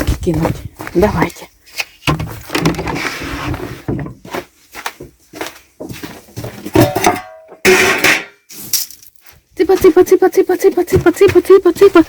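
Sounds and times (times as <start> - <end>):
container knocking and clattering: 6.7 - 8.4.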